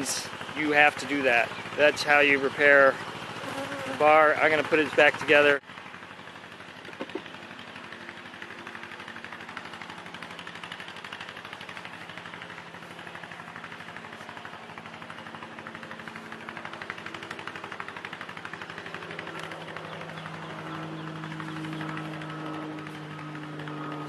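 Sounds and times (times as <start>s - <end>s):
honeybees buzzing: 3.3s - 4.6s.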